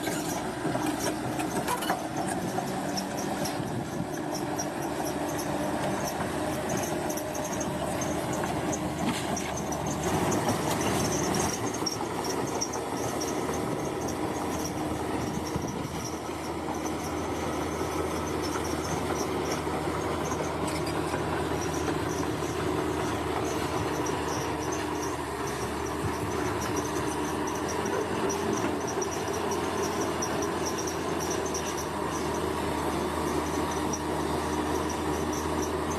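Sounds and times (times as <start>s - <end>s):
bulldozer diesel engine running: 0.0s - 35.9s
insects chirring: 16.8s - 32.4s.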